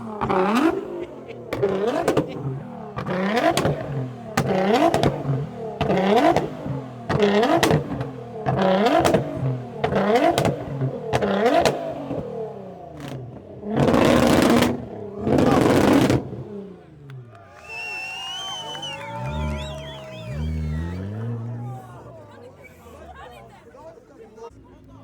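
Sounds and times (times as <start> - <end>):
exhaust cracks: 0.0 - 22.5
car engine revving in blips: 0.0 - 23.4.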